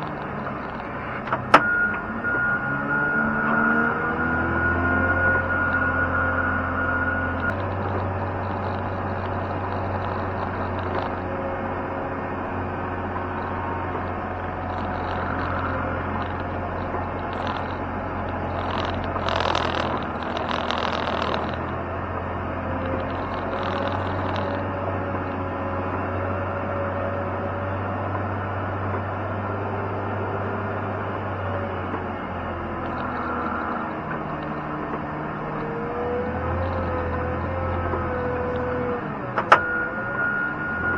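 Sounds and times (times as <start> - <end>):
heavy machine engine running: 0.0 - 40.9
rushing scraping noise: 13.0 - 21.9, 22.6 - 25.4.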